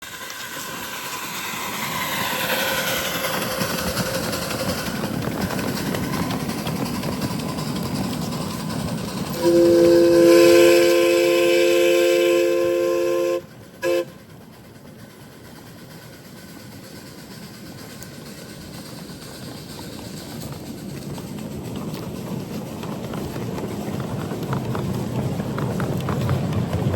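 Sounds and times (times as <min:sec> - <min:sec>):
miniature train running: 0:00.0 - 0:26.9
locomotive chime whistle: 0:09.4 - 0:14.2.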